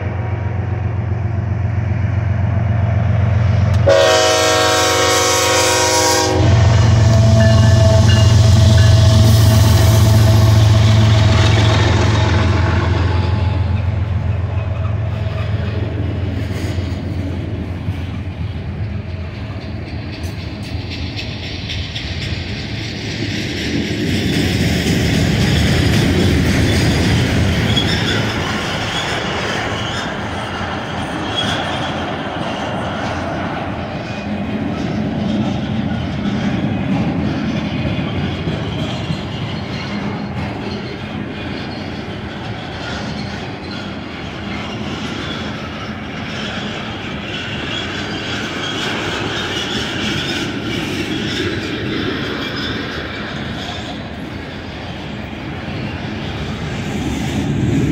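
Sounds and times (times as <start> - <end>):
train wheels rumbling and rattling: 0.0 - 57.9
high wheel squeal: 25.4 - 36.6, 37.3 - 57.2.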